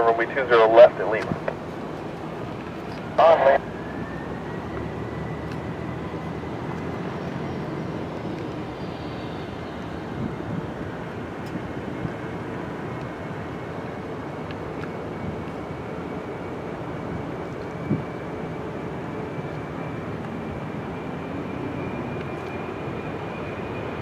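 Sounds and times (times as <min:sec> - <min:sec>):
high engine whine: 0:00.0 - 0:24.0
jet airliner engines running: 0:00.0 - 0:24.0.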